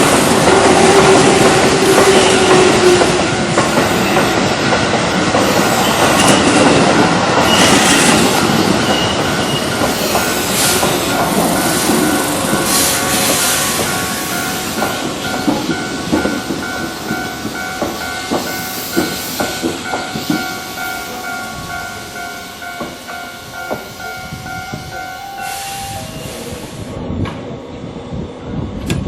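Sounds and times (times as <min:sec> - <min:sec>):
train wheels clattering over joints: 0:00.0 - 0:21.1
crossing warning bell ringing: 0:00.0 - 0:26.7.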